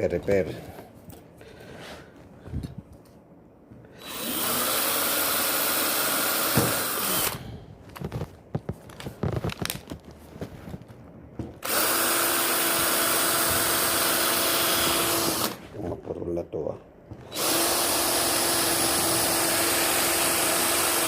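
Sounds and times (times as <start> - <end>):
electric hand drill running: 4.0 - 7.4, 11.6 - 15.6, 17.2 - 21.0.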